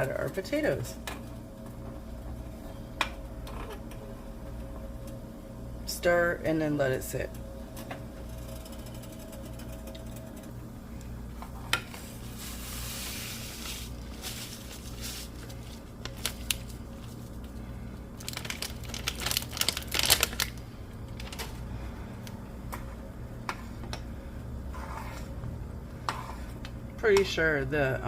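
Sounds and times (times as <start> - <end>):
steady low hum: 0.0 - 28.0
spoon scraping against pot: 24.7 - 25.4, 26.0 - 26.6.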